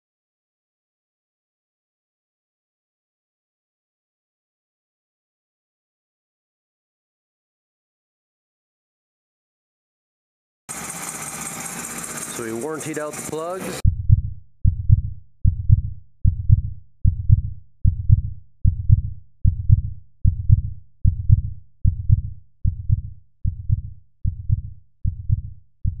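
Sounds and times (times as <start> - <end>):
deep thumping beat: 13.8 - 26.0.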